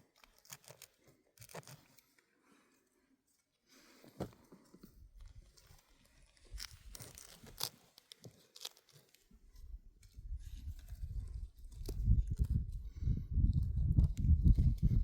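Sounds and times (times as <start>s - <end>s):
sharp snaps and tearing: 0.0s - 2.1s, 5.6s - 9.3s, 10.0s - 12.8s.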